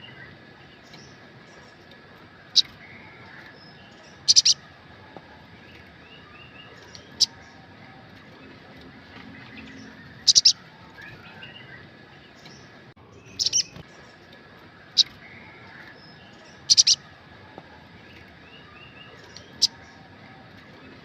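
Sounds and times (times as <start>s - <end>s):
faint bird twittering: 0.0s - 21.0s
bird sharp high chirps: 2.5s - 4.6s, 9.5s - 13.8s, 15.0s - 17.1s, 18.5s - 20.0s.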